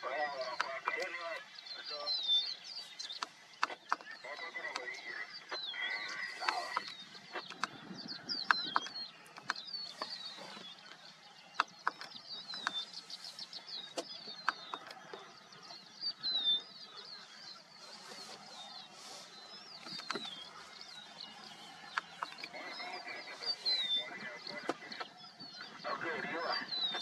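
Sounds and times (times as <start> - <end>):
small birds chirping: 0.0 - 27.0
sharp clicks: 0.4 - 1.5, 3.0 - 15.3, 19.6 - 25.1.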